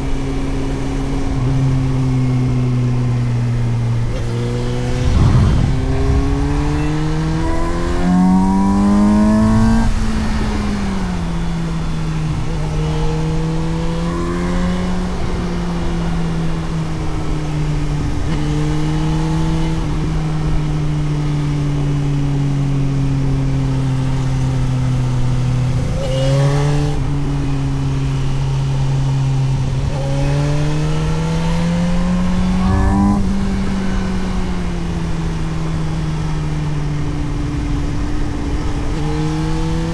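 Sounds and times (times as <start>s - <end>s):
motorcycle engine revving: 0.0s - 22.2s, 23.1s - 39.9s
wind noise: 4.1s - 11.6s.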